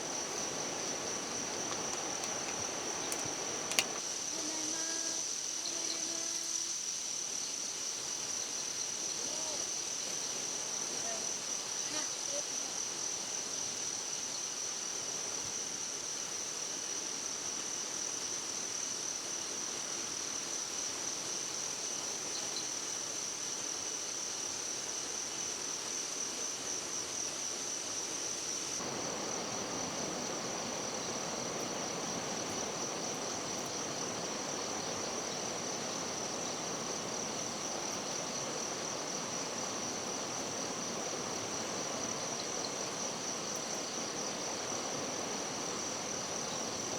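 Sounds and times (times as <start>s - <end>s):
running water rushing: 0.0s - 4.8s, 28.8s - 46.9s
insect chorus trilling: 0.0s - 46.9s.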